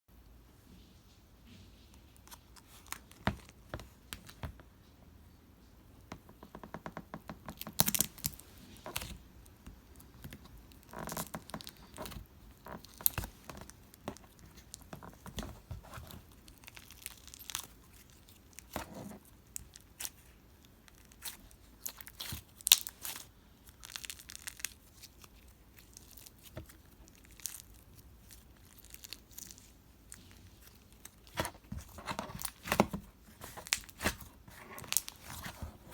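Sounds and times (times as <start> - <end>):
slime crust crackling and crunching: 7.5 - 35.9.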